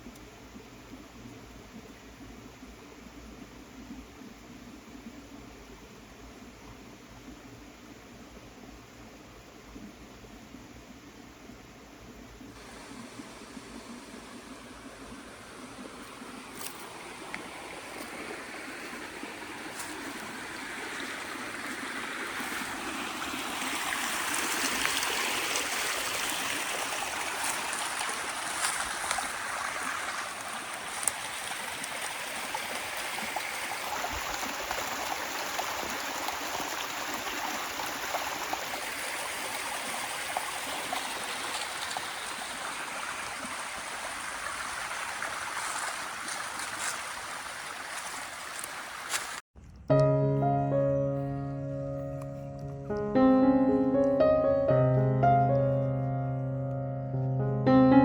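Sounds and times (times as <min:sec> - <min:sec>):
running water: 0:12.4 - 0:49.4.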